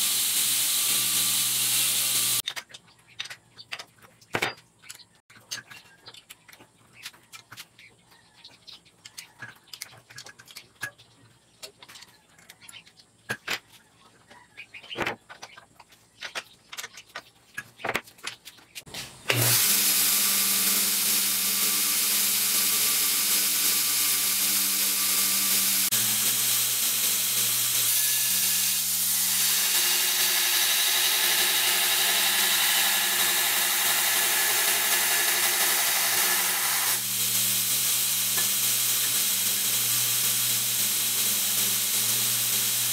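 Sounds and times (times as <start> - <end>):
belt sander motor humming: 0.0 - 2.4, 19.3 - 42.9.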